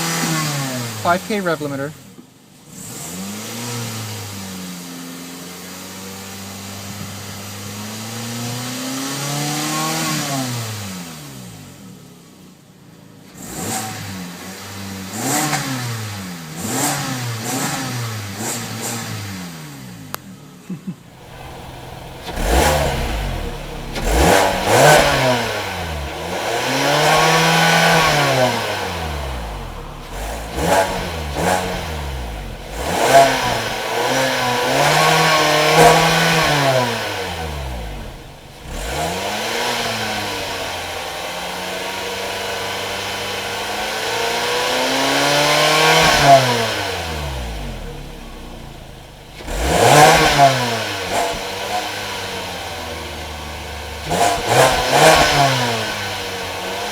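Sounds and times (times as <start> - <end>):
car engine revving: 13.3 - 19.9, 21.1 - 56.9.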